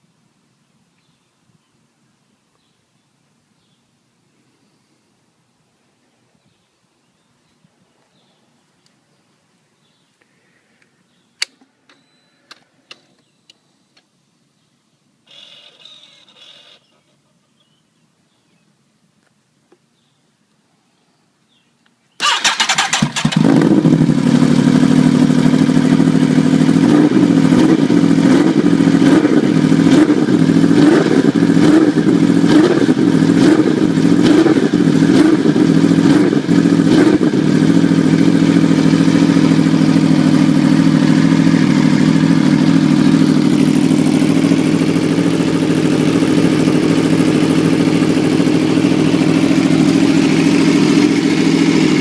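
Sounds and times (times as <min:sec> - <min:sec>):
motorcycle engine revving and idling: 0:22.2 - 0:52.0.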